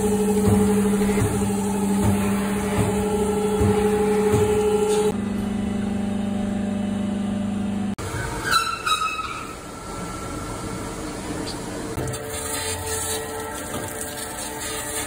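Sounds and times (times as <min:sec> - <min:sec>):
short high squeals: 0:08.2 - 0:09.7.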